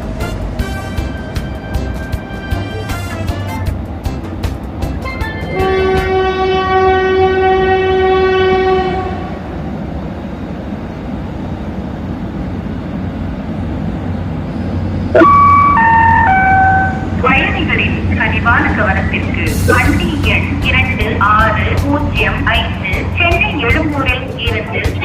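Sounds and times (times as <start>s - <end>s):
train running rumble: 0.0s - 25.0s
train horn blast: 0.2s - 3.7s, 5.5s - 9.4s, 15.2s - 17.3s
three-note descending chime: 15.2s - 17.2s.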